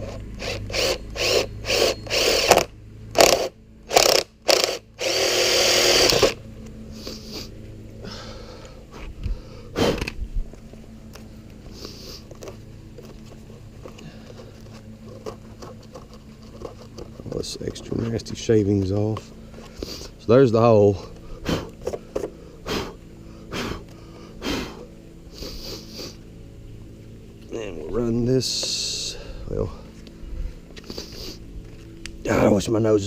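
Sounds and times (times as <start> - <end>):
power drill boring: 0.0 - 6.4
handling noise: 9.8 - 20.0.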